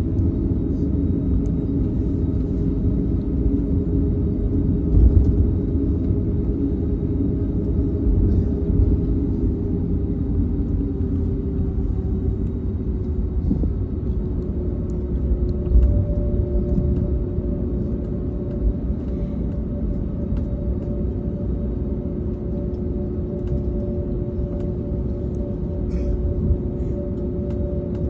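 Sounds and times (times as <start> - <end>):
airliner engine rumble: 0.0 - 28.0
higher engine tone: 0.2 - 28.0.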